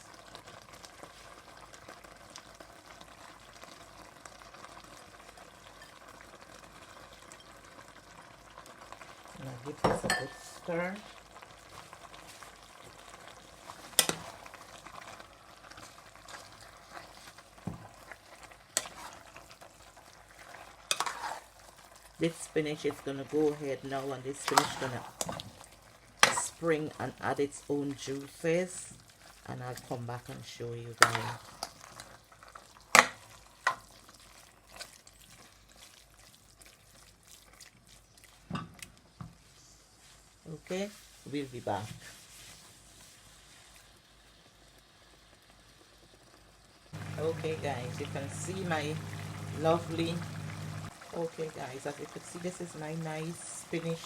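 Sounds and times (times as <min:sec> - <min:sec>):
sauce sizzling in a pot: 0:00.0 - 0:54.0
spoon stirring: 0:18.4 - 0:19.6, 0:20.4 - 0:25.6, 0:31.0 - 0:32.1, 0:47.0 - 0:50.9.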